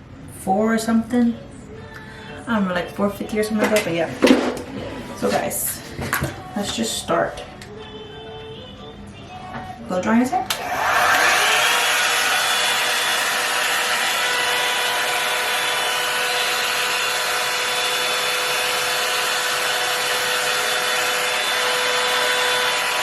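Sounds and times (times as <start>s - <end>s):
hair dryer rushing air: 10.5s - 23.0s.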